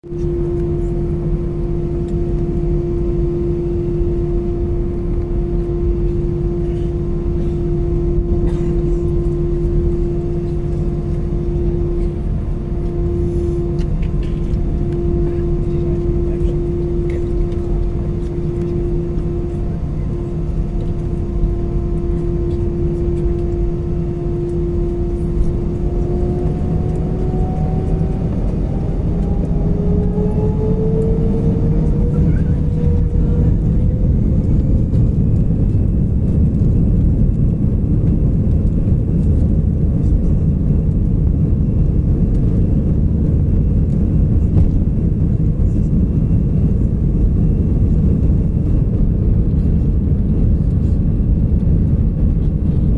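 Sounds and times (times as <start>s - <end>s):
jet engines spooling up: 0.1s - 36.7s.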